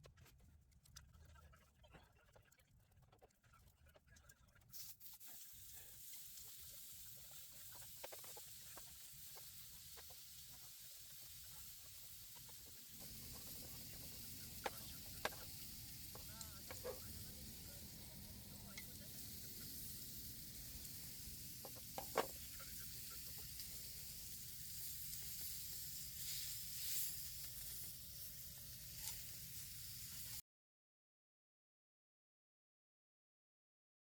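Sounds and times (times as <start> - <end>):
steak sizzling: 4.7 - 30.4.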